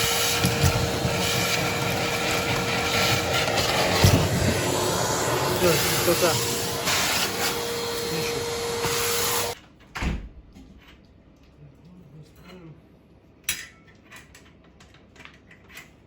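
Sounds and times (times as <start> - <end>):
vacuum cleaner whining: 0.0 - 9.6.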